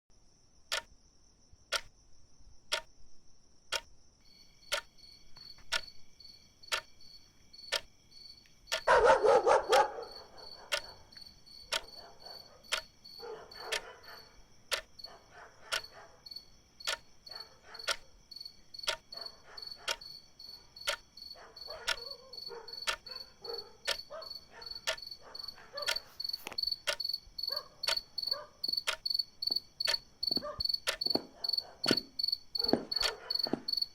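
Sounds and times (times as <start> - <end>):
crickets chirping: 0.1 - 33.9
clock ticking: 1.7 - 1.9, 4.6 - 6.0, 6.7 - 7.0, 7.6 - 7.9, 8.7 - 15.0, 15.6 - 16.0, 16.8 - 18.2, 18.8 - 33.9
dog barking: 8.8 - 11.1, 11.7 - 14.4, 15.0 - 16.3, 17.3 - 18.1, 19.2 - 20.0, 21.3 - 26.2, 27.5 - 28.6, 30.3 - 32.0, 32.6 - 33.7.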